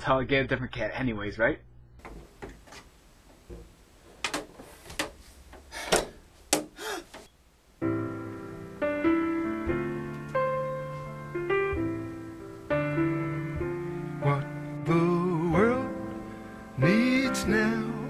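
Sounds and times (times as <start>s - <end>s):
piano music: 7.8s - 18.0s.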